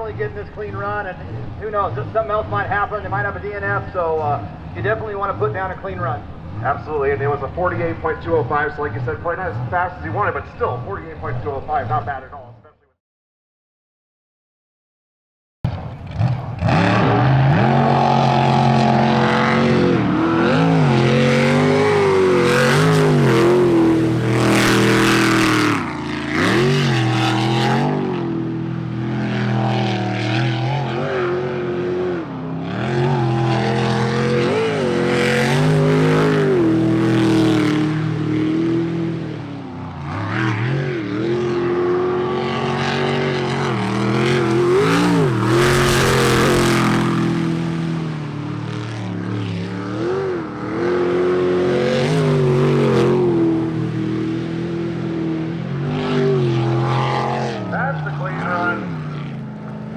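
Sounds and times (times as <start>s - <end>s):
boat engine revving hard: 16.1s - 59.1s.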